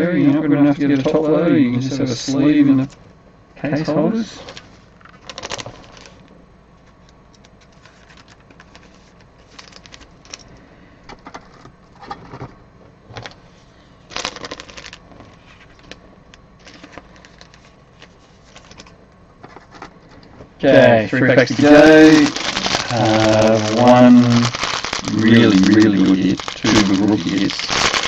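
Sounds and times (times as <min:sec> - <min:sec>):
trading cards rustling and clicking: 0:04.4 - 0:10.5, 0:14.1 - 0:20.2, 0:21.4 - 0:28.0.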